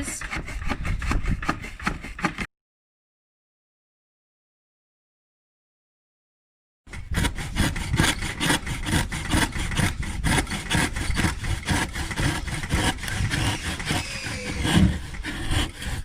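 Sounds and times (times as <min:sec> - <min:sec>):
hand saw cutting wood: 0:00.0 - 0:02.5, 0:06.9 - 0:16.0.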